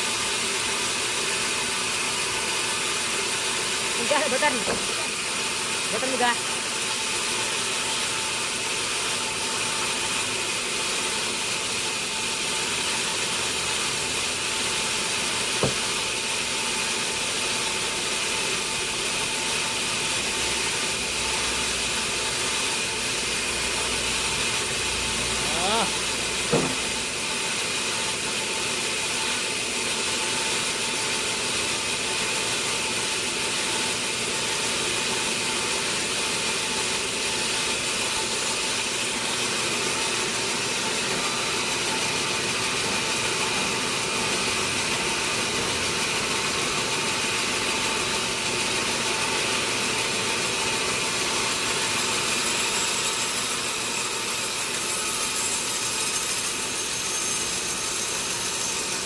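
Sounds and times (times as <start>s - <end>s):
sawmill saw whining: 0.0s - 59.0s.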